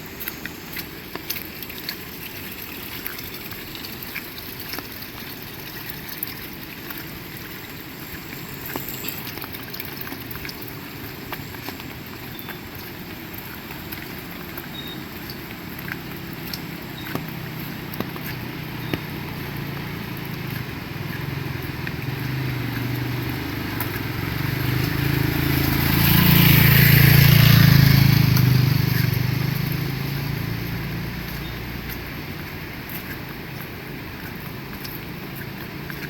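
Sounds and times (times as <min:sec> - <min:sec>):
rain: 0:00.0 - 0:36.0
water drips ticking: 0:00.0 - 0:36.0
vehicle engine passing by: 0:15.2 - 0:36.0.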